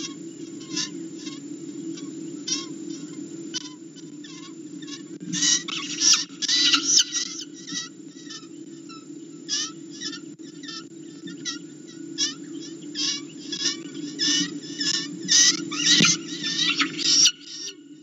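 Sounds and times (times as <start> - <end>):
steady low hum: 0.0 - 18.0
bird distress screams: 4.2 - 8.4, 9.5 - 17.8.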